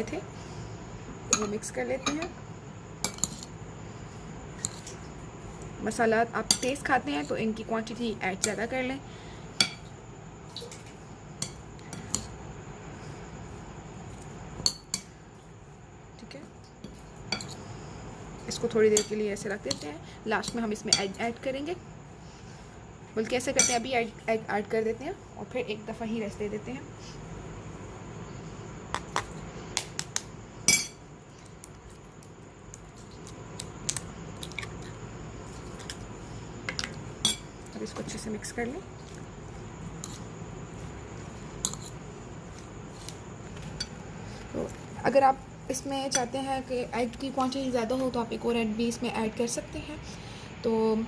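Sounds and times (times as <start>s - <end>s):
spoon clinking against a bowl: 30.7s - 31.0s.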